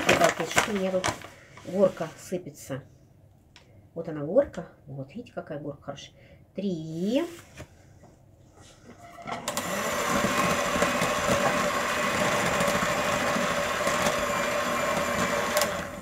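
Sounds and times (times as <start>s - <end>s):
electric mixer running: 9.3s - 16.0s.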